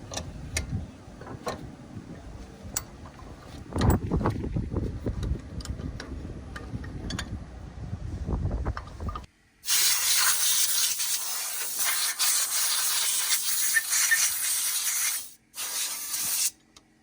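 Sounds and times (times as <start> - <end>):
spray hissing: 9.7 - 16.5.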